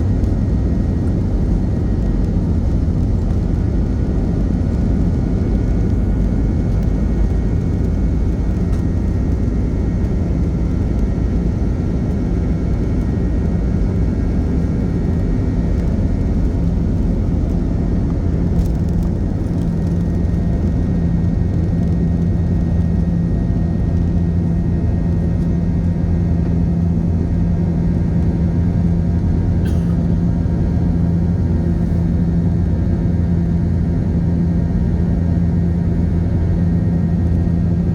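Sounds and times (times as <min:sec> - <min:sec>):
aircraft engines rumbling: 0:00.0 - 0:37.9.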